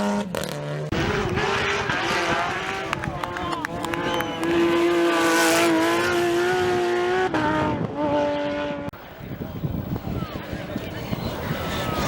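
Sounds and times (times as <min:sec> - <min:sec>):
rally car engine at high revs: 0:00.0 - 0:09.0.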